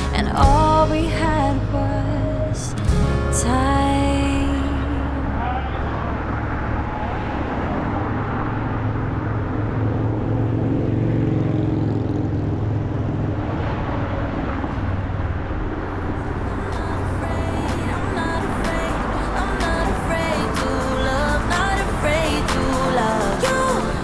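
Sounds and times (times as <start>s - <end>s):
music: 0.0s - 5.1s, 16.5s - 24.0s
vehicle engine passing: 0.0s - 24.0s.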